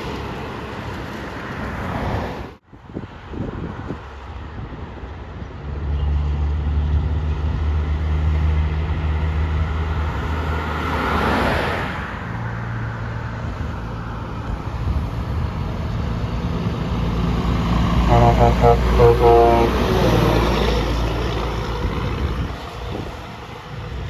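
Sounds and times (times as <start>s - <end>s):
rush of tyre and air noise: 0.0s - 24.0s
truck engine droning: 15.6s - 24.0s.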